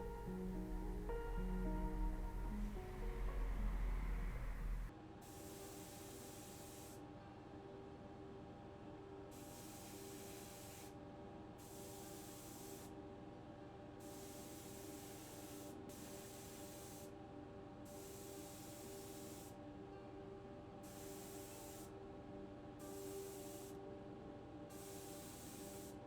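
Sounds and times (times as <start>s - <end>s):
steady low hum: 0.0s - 4.9s
compressed-air sprayer hissing: 14.0s - 17.1s, 17.9s - 19.6s, 20.9s - 21.9s, 22.9s - 23.8s, 24.7s - 26.0s.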